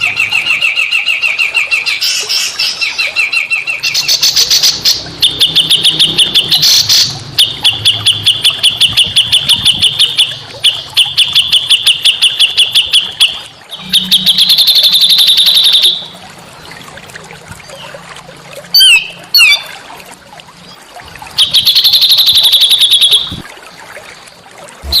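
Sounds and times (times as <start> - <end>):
songbird chirping trill: 0.0 - 16.8.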